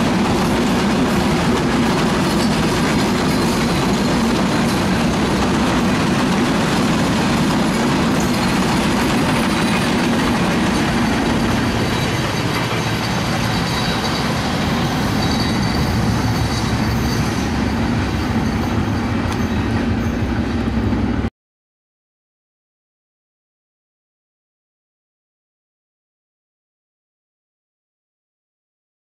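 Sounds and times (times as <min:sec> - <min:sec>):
train wheels rumbling on track: 0:00.0 - 0:21.3
high wheel squeal: 0:00.3 - 0:05.4, 0:07.6 - 0:20.9.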